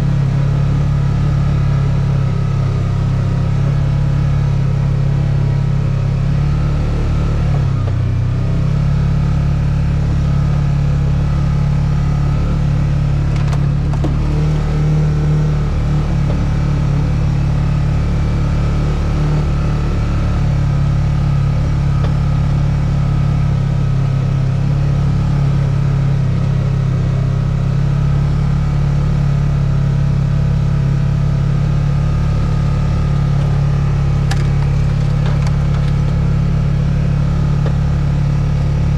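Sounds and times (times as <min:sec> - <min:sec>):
steady engine drone: 0:00.0 - 0:38.9.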